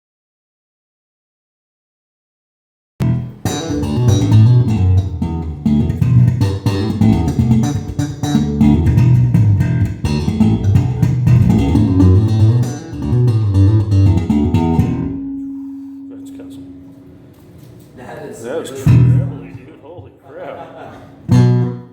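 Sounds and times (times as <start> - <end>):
electric bass plucked notes: 3.0 - 17.2, 18.8 - 19.5, 21.3 - 21.9.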